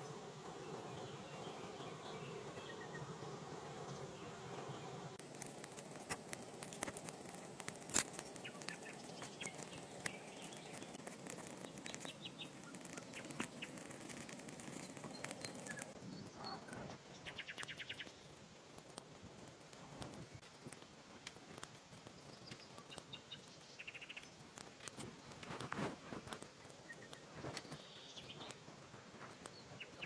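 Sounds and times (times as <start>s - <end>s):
sharp clicks and ticks: 5.2s - 30.0s
birds chirping: 8.2s - 18.3s.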